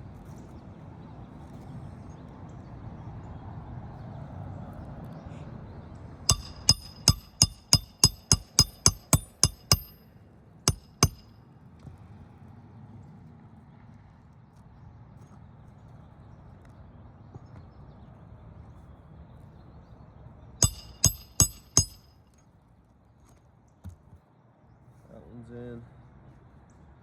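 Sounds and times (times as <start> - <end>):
hammer blows on nail: 6.3 - 10.1, 10.7 - 11.3.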